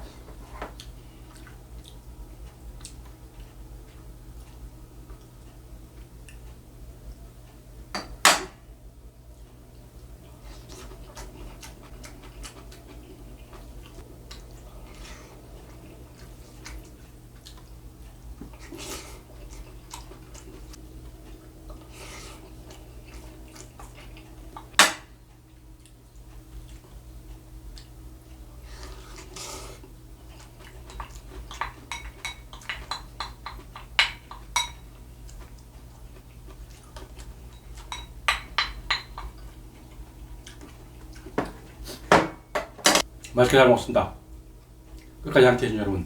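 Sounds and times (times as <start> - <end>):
cutlery clinking against bowl: 30.9 - 34.9, 37.0 - 39.6.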